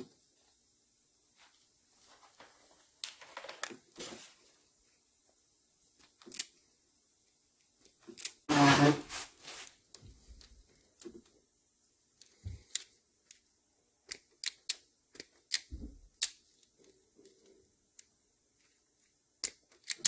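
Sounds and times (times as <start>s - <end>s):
small parts clicking: 6.0s - 6.6s, 7.7s - 8.5s, 12.1s - 20.0s.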